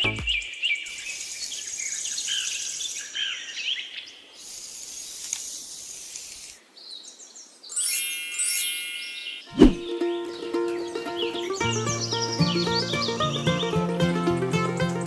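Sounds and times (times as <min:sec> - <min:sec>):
bird chirps: 0:07.0 - 0:15.0.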